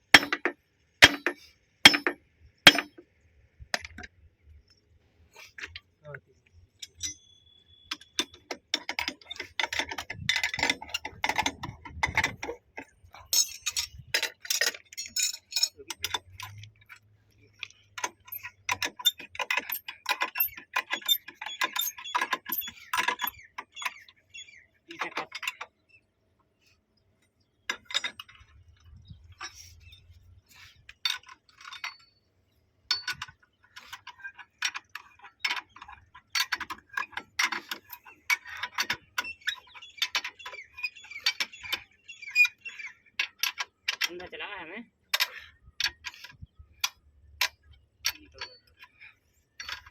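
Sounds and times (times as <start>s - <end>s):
hand tools clicking on metal: 0.1s - 3.0s, 7.9s - 24.0s, 45.1s - 49.9s.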